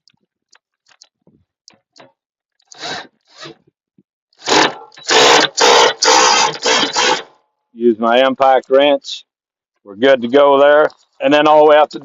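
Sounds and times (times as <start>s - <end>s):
impact wrench bursts: 4.4s - 7.3s.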